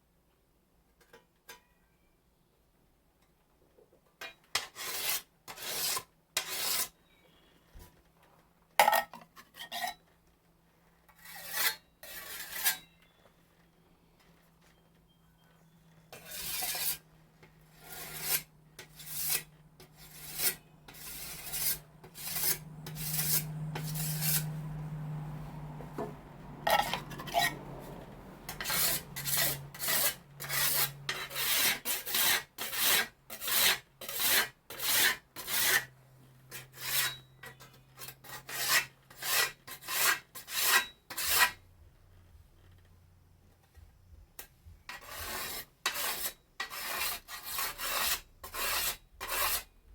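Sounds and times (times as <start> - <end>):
whetstone scraping scythe blade: 4.6 - 7.0, 11.2 - 13.1, 16.1 - 17.0, 17.7 - 24.6, 26.6 - 27.6, 28.5 - 35.9, 36.5 - 41.6, 44.9 - 49.7.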